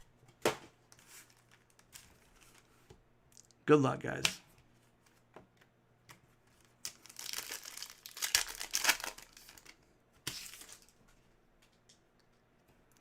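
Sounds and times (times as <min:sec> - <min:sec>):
plastic wrapper tearing and crinkling: 0:06.8 - 0:10.9.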